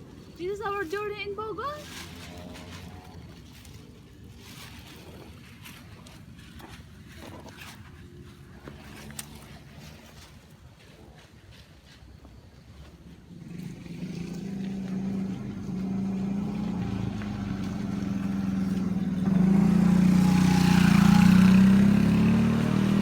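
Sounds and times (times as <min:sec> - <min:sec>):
motorcycle engine running: 0:12.8 - 0:23.0.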